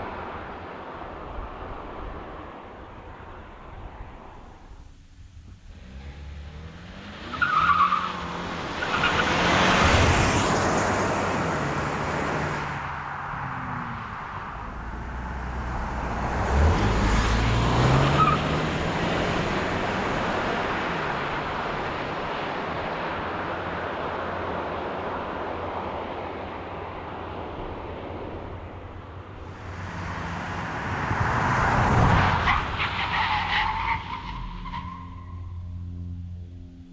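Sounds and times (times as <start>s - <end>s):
car engine accelerating: 5.5s - 23.8s, 29.3s - 36.9s.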